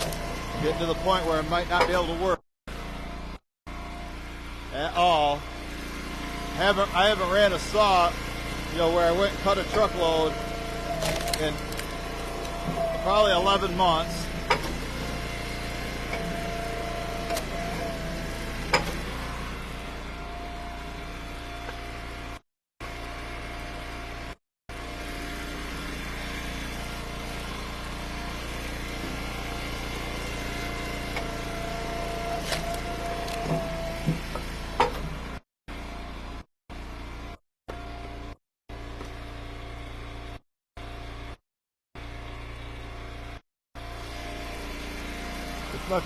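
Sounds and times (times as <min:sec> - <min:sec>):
small engine idling: 0:00.0 - 0:41.4, 0:42.0 - 0:46.0.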